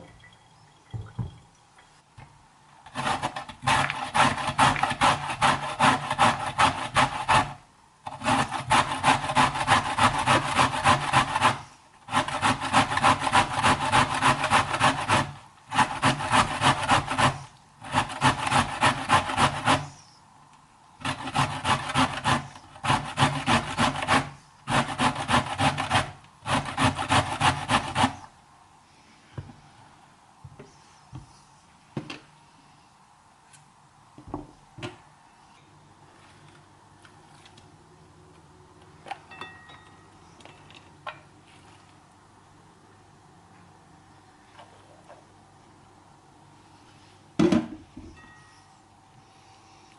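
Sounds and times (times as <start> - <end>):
zucchini rasping against blade: 2.9 - 20.0, 21.0 - 28.3.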